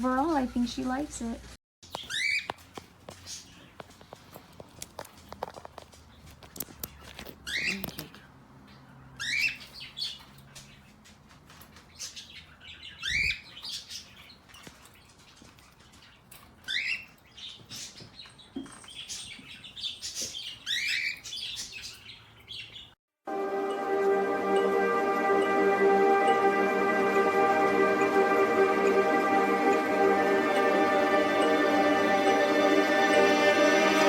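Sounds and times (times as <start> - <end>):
parrot chirping: 1.9 - 2.6
music: 23.3 - 34.0.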